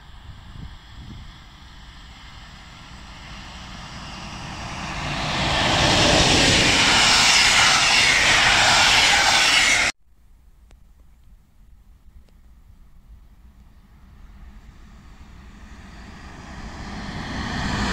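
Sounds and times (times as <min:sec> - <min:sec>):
passenger train passing: 0:00.0 - 0:09.9, 0:13.8 - 0:17.9
faint outdoor background: 0:09.1 - 0:17.7.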